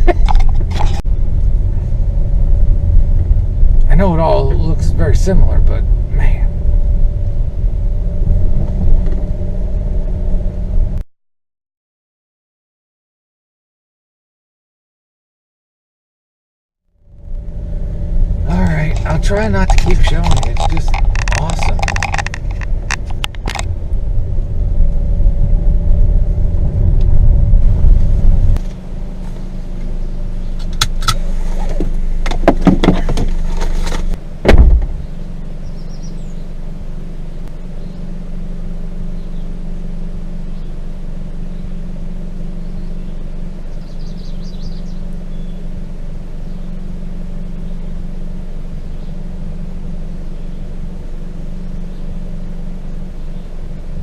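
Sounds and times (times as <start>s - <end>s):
car body rattling: 0.0s - 3.8s, 17.2s - 25.2s, 27.8s - 38.4s
car rumbling on dirt track: 0.0s - 11.0s, 16.9s - 54.0s
engine and tyre hum: 0.0s - 11.1s, 16.9s - 54.0s
car thumping over bump: 30.5s - 35.9s.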